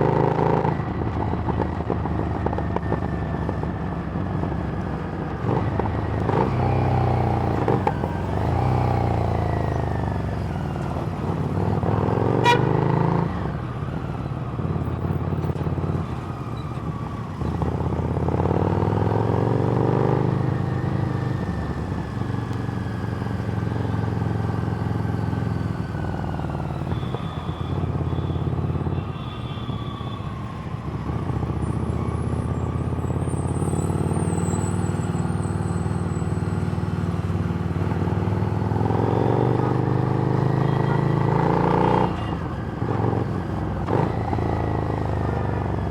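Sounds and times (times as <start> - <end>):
motorcycle engine revving: 5.3 - 16.3, 17.2 - 28.9, 30.7 - 45.9.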